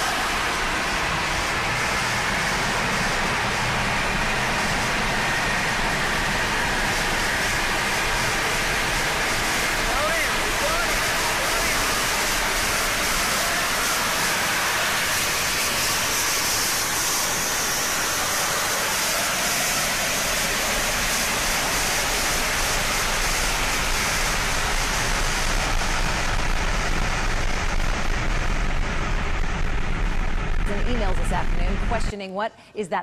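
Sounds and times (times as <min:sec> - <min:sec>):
gas venting roaring hiss: 0:00.0 - 0:32.0
low rumble: 0:22.4 - 0:32.1.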